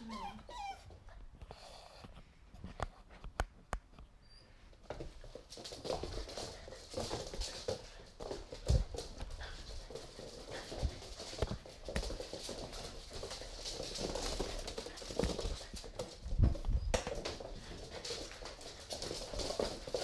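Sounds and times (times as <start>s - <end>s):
puppy paws thumping on floor: 4.7s - 20.0s.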